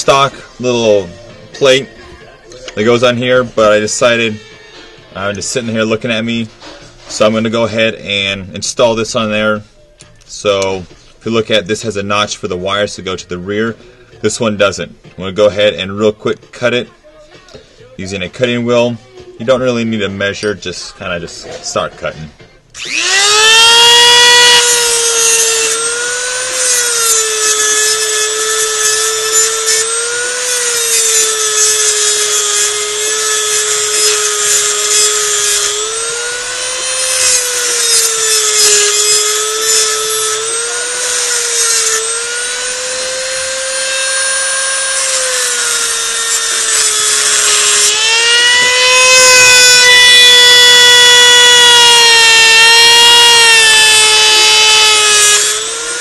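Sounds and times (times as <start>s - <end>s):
rotary tool grinding metal: 22.8s - 56.0s.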